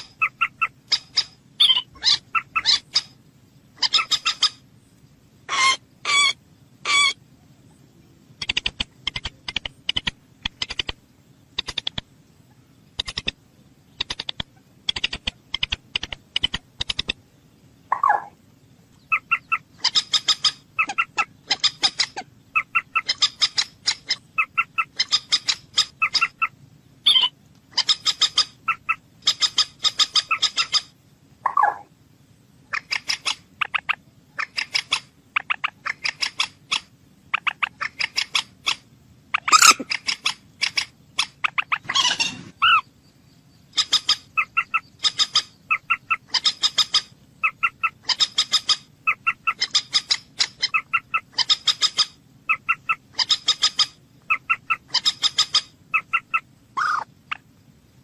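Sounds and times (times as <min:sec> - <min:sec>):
moorhen clucking calls: 0:00.0 - 0:03.2, 0:03.8 - 0:04.7, 0:05.4 - 0:07.2, 0:17.9 - 0:18.4, 0:19.0 - 0:31.9, 0:32.6 - 0:42.9, 0:43.7 - 0:57.5
sharp clicks: 0:08.4 - 0:11.0, 0:11.6 - 0:12.1, 0:13.0 - 0:13.4, 0:14.0 - 0:17.2.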